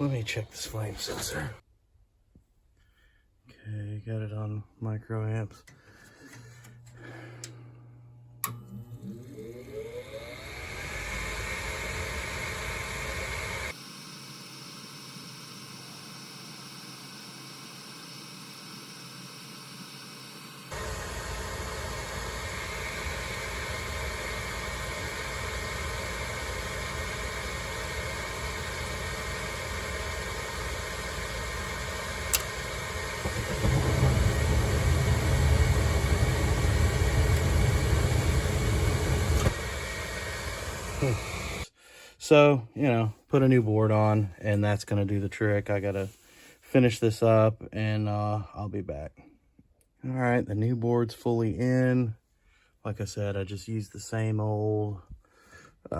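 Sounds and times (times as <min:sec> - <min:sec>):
furnace motor whirring: 0:06.2 - 0:41.7
deep rumble: 0:33.1 - 0:39.5.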